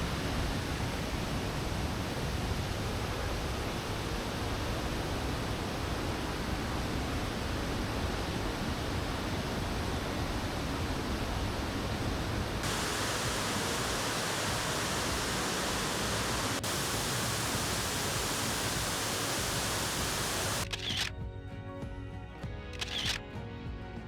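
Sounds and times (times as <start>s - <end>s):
waterfall rushing: 12.5s - 20.6s
music: 12.6s - 24.0s.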